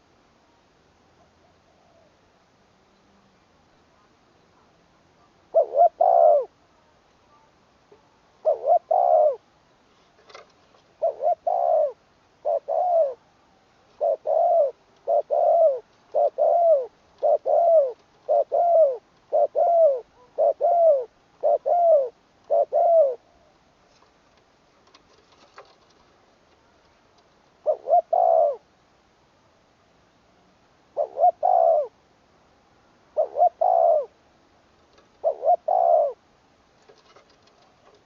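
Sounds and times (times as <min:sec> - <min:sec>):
dove cooing: 0:05.2 - 0:06.6, 0:08.4 - 0:09.4, 0:11.0 - 0:13.2, 0:13.9 - 0:23.6, 0:27.6 - 0:28.7, 0:31.0 - 0:32.0, 0:33.1 - 0:34.2, 0:34.9 - 0:36.2.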